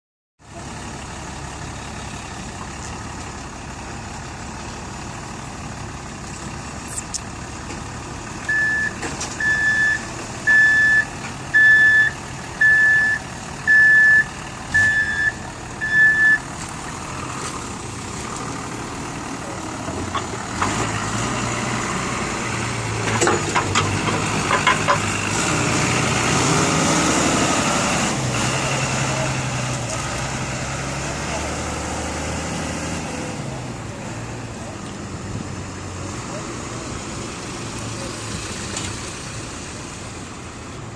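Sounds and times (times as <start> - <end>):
truck engine running: 0.4 - 40.9
reversing alarm beeps: 8.5 - 16.4.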